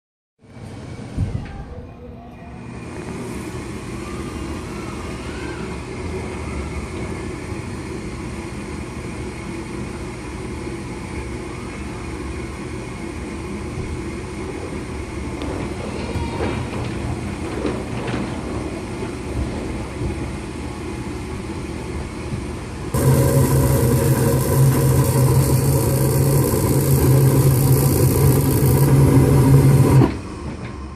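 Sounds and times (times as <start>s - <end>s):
furnace motor hum: 2.6s - 30.9s
furnace burner rush: 22.7s - 30.9s.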